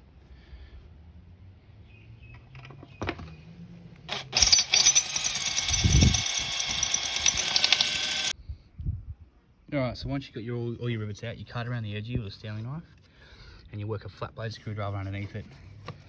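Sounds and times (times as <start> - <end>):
electric drill drilling metal: 4.1 - 8.3.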